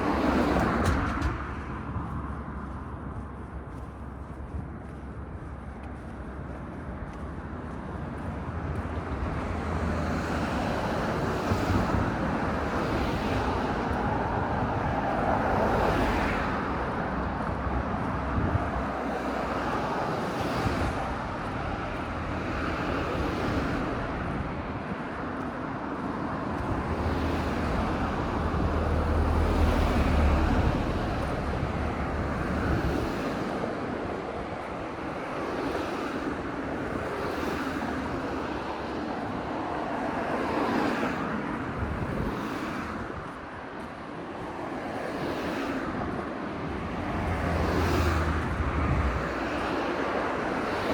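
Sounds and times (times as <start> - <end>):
cars passing: 0.0 - 50.9.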